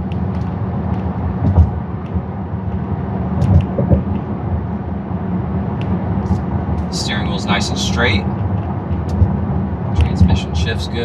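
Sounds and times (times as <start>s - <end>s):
car engine and tyre rumble: 0.0s - 11.0s
dull thumps: 1.4s - 1.8s, 3.4s - 4.1s.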